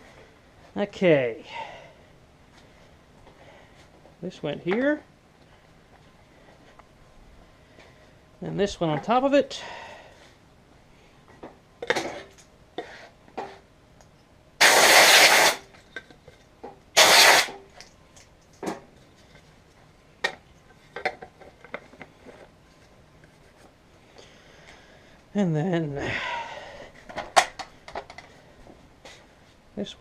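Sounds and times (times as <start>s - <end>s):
hissing bursts: 14.6s - 15.7s, 17.0s - 17.6s.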